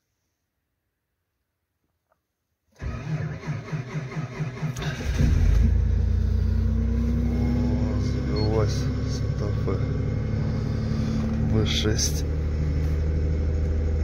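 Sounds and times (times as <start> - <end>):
starter motor cranking: 2.8 - 5.8
car engine running: 4.7 - 14.0.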